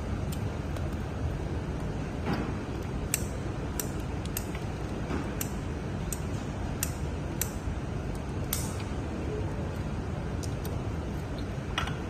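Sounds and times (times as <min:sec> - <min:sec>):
sharp light clicks: 0:03.1 - 0:04.6, 0:05.4 - 0:08.9.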